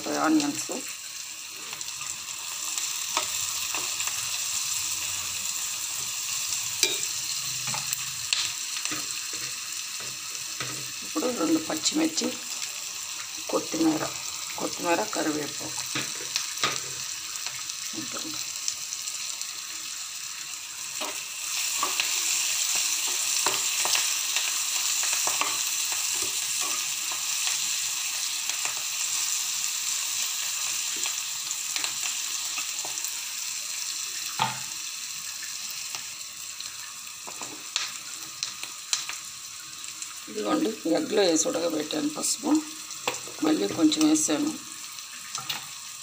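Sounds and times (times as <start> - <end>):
vegetables sizzling in hot oil: 0.0 - 46.0
metal spatula scraping a pan: 6.8 - 8.0.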